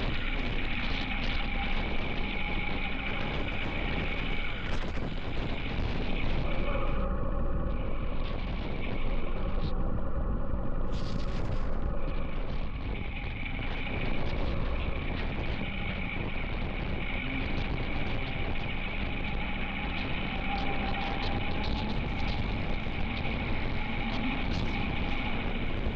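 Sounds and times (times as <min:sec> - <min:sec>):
wind on microphone: 0:00.0 - 0:25.9.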